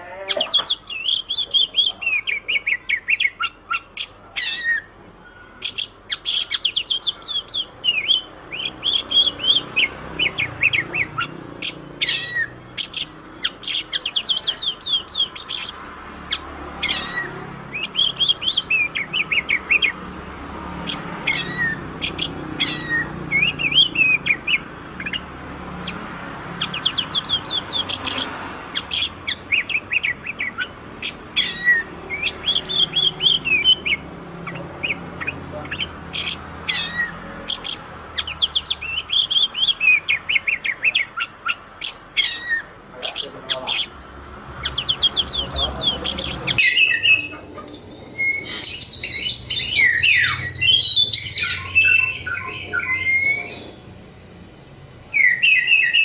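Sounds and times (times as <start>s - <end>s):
bird singing rapid chirps and whistles: 0.0s - 44.0s, 44.6s - 56.0s.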